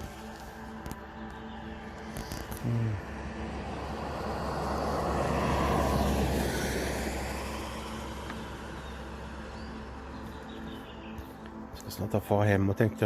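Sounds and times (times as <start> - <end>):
vehicle passing by: 0.8 - 11.2.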